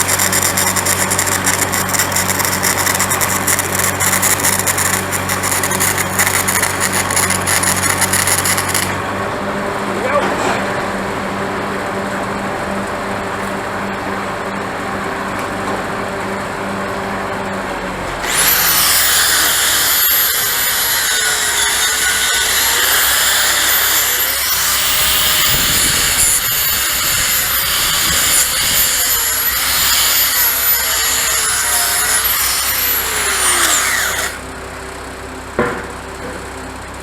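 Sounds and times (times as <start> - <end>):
angle grinder grinding steel: 0.0 - 9.0, 18.2 - 34.5.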